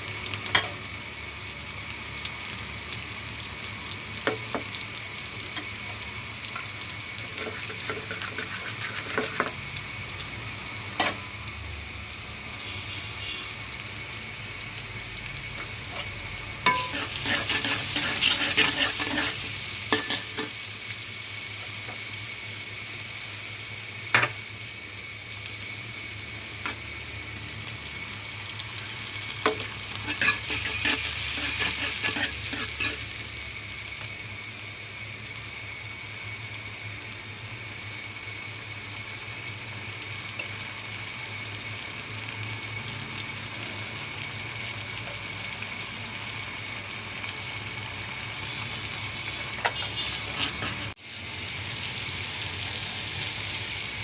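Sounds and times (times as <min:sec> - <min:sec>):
food sizzling in a pan: 0:00.0 - 0:54.0
utensil scraping a pan: 0:16.7 - 0:20.5, 0:29.5 - 0:33.1, 0:49.6 - 0:51.0.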